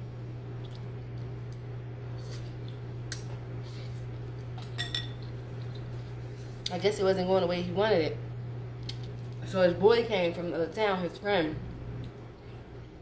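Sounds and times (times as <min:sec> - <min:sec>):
steady low hum: 0:00.0 - 0:13.0
utensils clinking against a dish: 0:04.7 - 0:05.2.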